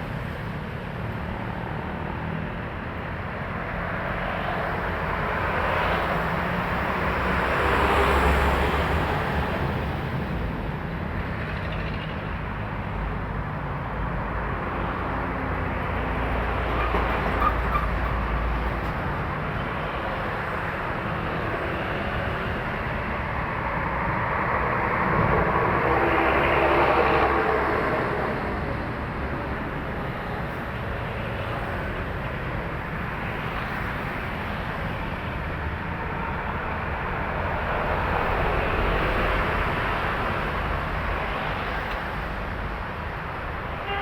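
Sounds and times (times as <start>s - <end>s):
highway traffic noise: 0.0s - 44.0s.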